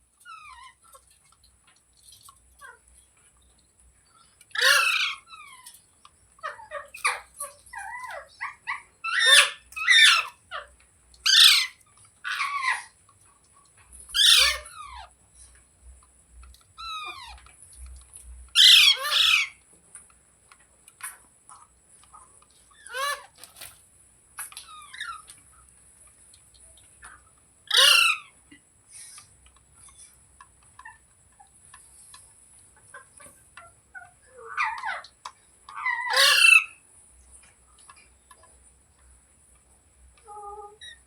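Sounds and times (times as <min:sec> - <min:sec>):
parrot screeching: 0:00.2 - 0:00.9, 0:04.5 - 0:05.8, 0:06.4 - 0:13.0, 0:14.1 - 0:15.1, 0:16.8 - 0:17.4, 0:18.6 - 0:19.6, 0:22.8 - 0:23.7, 0:27.7 - 0:28.4, 0:35.7 - 0:36.8.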